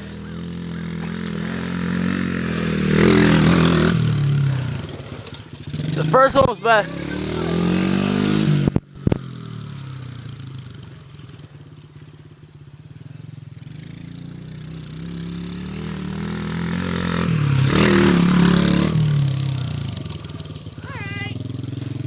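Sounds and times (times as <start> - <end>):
dirt bike engine: 0.0 - 22.0
sharp clicks: 8.7 - 9.3.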